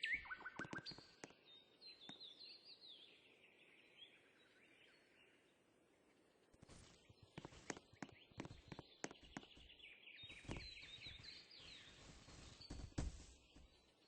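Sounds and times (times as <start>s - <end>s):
faint bird chirping: 0.0s - 14.0s
soft clicks: 0.4s - 1.4s, 7.3s - 9.7s.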